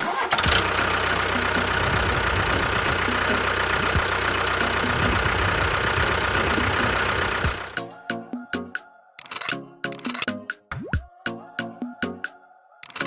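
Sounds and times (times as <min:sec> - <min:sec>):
tractor engine running: 0:00.0 - 0:07.8, 0:09.2 - 0:10.3.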